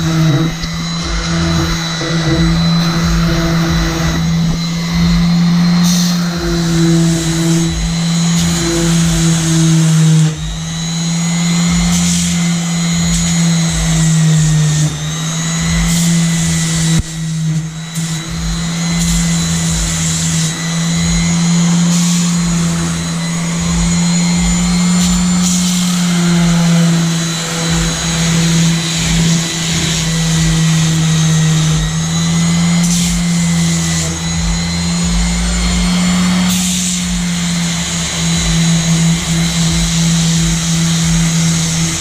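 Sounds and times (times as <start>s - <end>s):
electric sander running: 0.0s - 42.0s.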